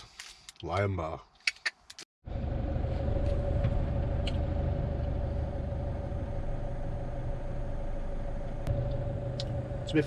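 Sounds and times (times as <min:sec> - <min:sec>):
van engine idling: 0:02.3 - 0:10.0.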